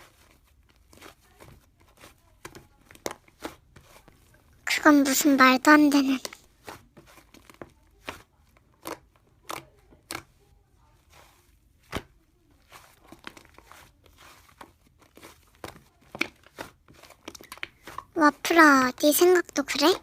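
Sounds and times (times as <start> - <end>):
slime squishing with clicks and pops: 7.2 - 10.4, 15.5 - 18.2.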